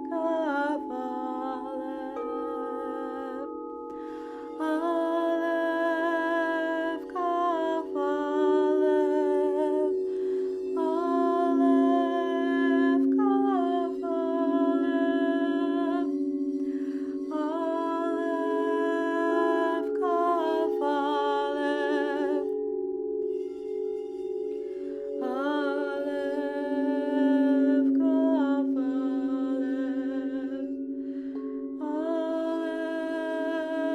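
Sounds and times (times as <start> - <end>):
singing bowls ringing: 0.0 - 33.9.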